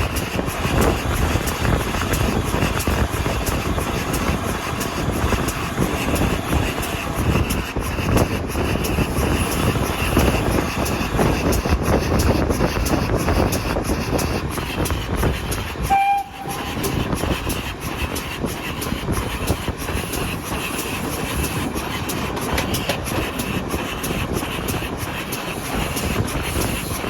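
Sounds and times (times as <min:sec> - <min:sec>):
train rumbling: 0:00.0 - 0:27.0
wheels clicking over rail joints: 0:00.0 - 0:27.0.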